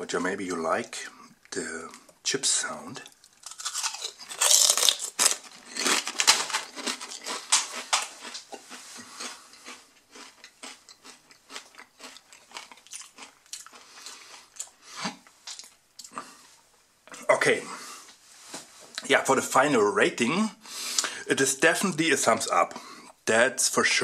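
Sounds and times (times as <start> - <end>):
person crunching potato chips: 3.0 - 16.2.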